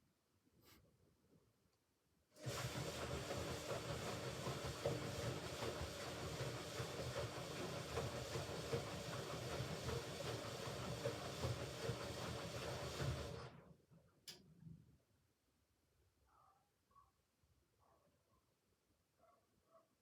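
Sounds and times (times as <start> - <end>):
washing machine running: 2.4 - 13.8.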